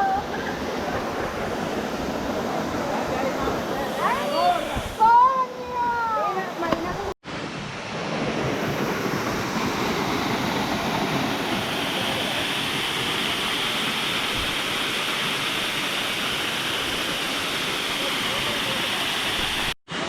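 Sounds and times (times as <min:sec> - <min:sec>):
large waterfall roaring: 0:00.0 - 0:20.0.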